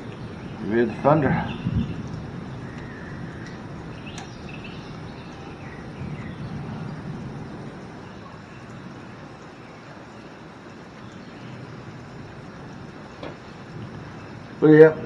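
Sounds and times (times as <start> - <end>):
distant thunder rumbling: 0.0 - 15.0.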